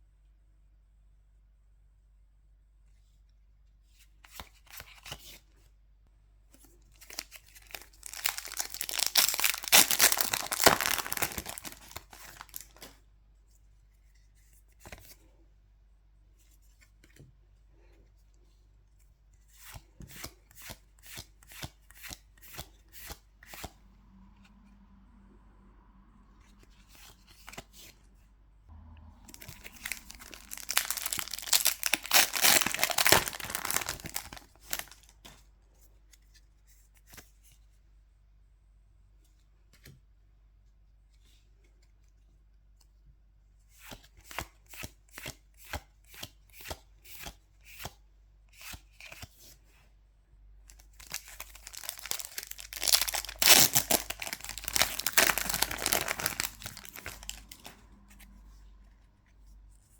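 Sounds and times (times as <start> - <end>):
foil wrappers tearing and crinkling: 7.0 - 12.9, 29.3 - 35.1, 50.8 - 57.7.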